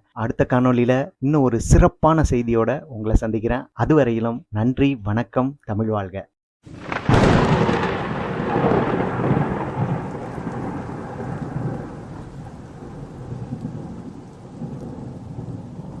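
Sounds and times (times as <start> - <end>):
thunder rumble: 6.7 - 16.0.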